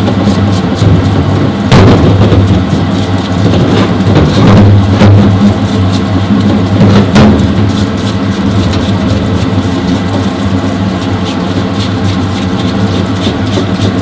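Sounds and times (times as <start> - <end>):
sharp knocks: 1.7 - 2.4.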